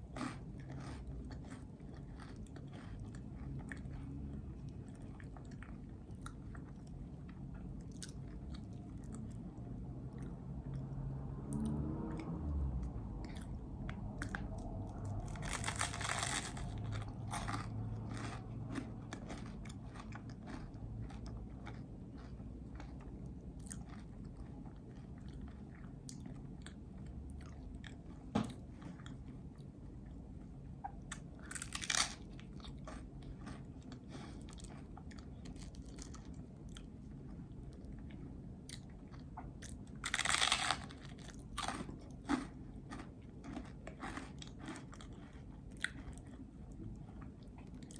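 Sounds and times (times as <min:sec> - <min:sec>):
sticky chewing sounds: 0:00.0 - 0:47.9
bites crunching: 0:15.3 - 0:24.1, 0:39.6 - 0:46.3.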